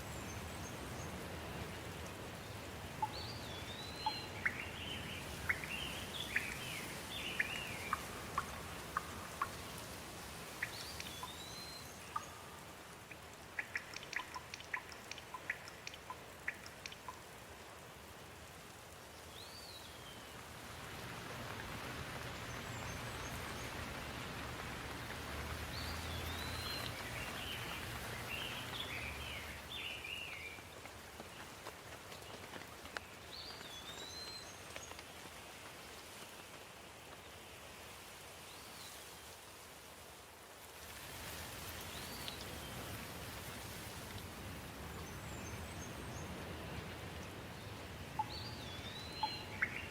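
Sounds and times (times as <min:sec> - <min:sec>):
steady rain falling: 0:00.0 - 0:49.9
bird chirps: 0:03.0 - 0:09.6, 0:10.6 - 0:17.2, 0:48.1 - 0:49.9.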